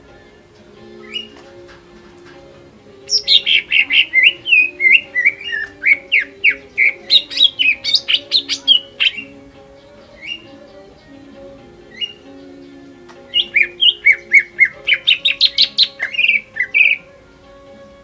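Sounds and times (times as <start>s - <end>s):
bird singing chirps and whistles: 0.9s - 1.6s, 3.0s - 11.1s, 11.9s - 17.1s.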